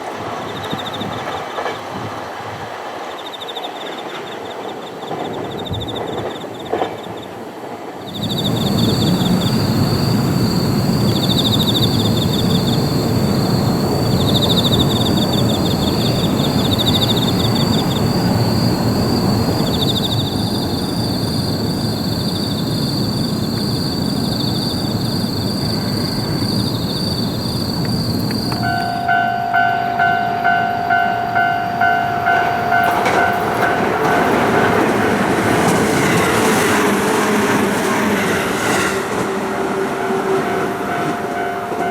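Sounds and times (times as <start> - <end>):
train rumbling past: 0.0 - 41.9
insects chirping: 2.8 - 7.4, 8.0 - 41.9
level-crossing bell ringing: 28.5 - 35.7, 40.5 - 41.9.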